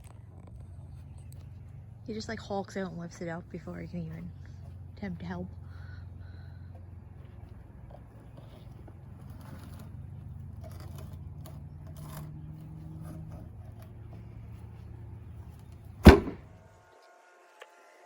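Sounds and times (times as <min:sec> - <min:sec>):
low mechanical hum: 0:00.0 - 0:18.0
loud knock: 0:16.1 - 0:16.5.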